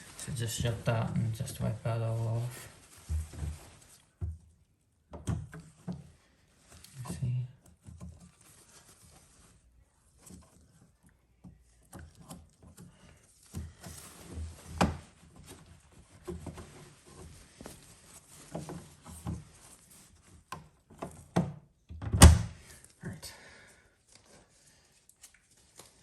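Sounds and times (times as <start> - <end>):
cloth rubbing washing machine: 0.0 - 4.2, 5.4 - 21.6.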